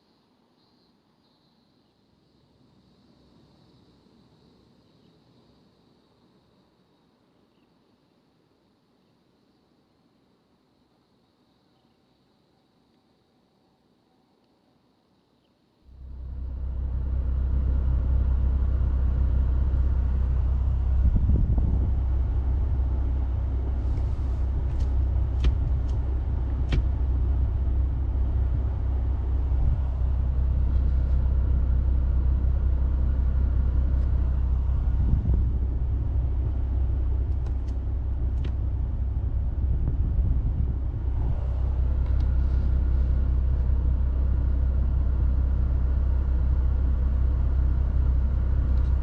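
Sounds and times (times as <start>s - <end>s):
car engine and road noise: 15.9s - 49.0s.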